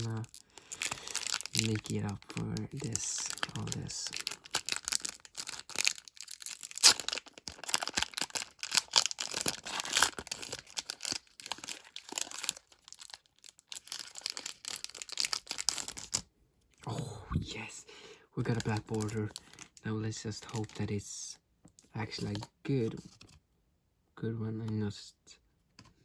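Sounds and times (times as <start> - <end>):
foil wrapper crinkling and tearing: 0.0 - 16.2, 18.5 - 19.8.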